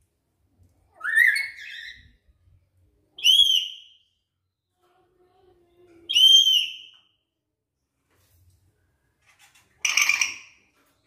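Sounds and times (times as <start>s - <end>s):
parrot whistled calls: 1.0s - 2.0s.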